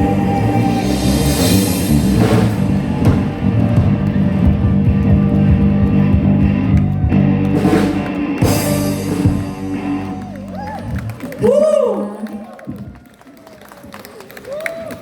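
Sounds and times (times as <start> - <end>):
cymbal crashes: 0.0 - 3.6
live rock band playing: 0.0 - 11.3.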